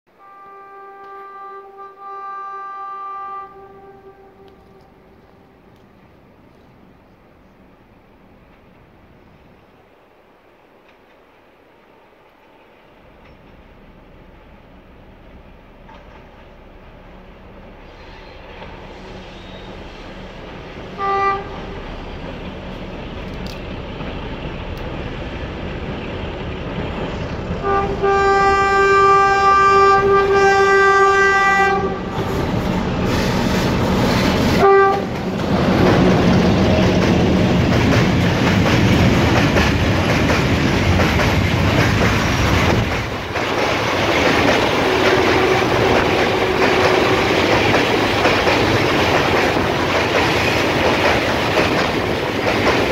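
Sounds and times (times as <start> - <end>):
locomotive horn blasts: 0.1 - 5.7, 20.9 - 22.0, 27.6 - 32.3, 34.5 - 35.2, 44.8 - 47.5
freight train rumble: 0.1 - 52.9
wagons rolling on rails: 32.2 - 52.9.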